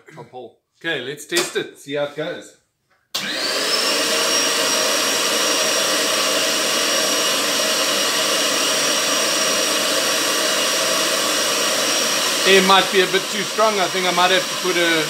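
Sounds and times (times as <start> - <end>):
vacuum blower whining: 3.2 - 15.0.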